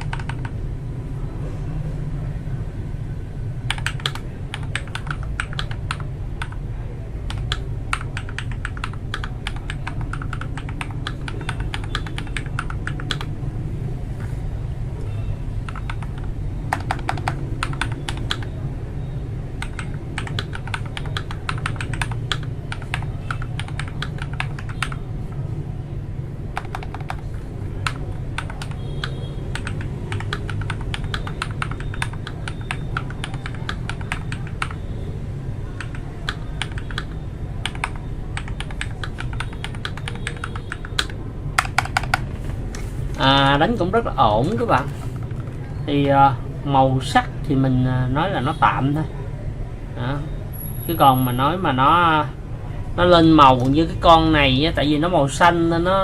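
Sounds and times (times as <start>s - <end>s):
mechanical keyboard typing: 0.0s - 0.6s, 3.6s - 6.6s, 7.2s - 13.4s, 15.6s - 18.6s, 19.6s - 25.4s, 26.5s - 34.8s, 35.7s - 42.5s, 44.5s - 45.7s.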